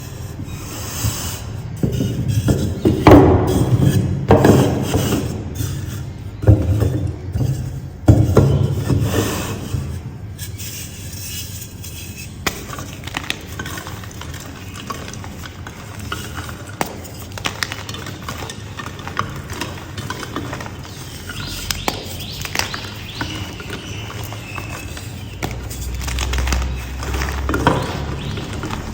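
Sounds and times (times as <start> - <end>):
chalk blocks crunching: 0.0 - 28.9
faint birds chirping: 17.7 - 28.9.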